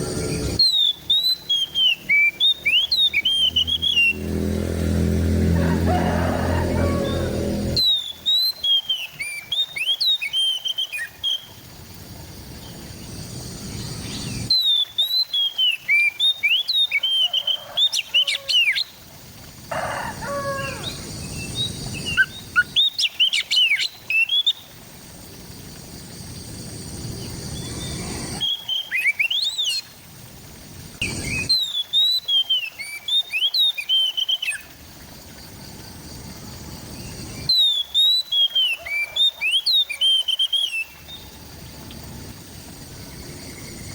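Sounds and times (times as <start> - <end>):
bird singing whistled phrases: 0.2 - 4.2, 7.8 - 11.5, 14.5 - 18.3, 27.6 - 29.8, 31.1 - 34.7, 37.5 - 41.0.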